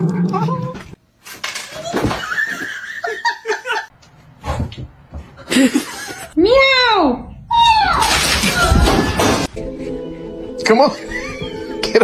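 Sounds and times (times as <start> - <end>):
person laughing: 5.4 - 6.4, 11.0 - 12.0.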